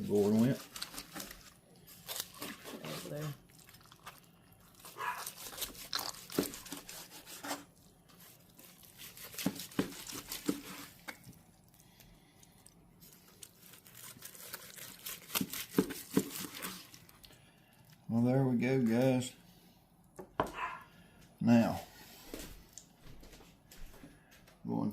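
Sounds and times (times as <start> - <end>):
crinkling and crunching: 0.0 - 18.1.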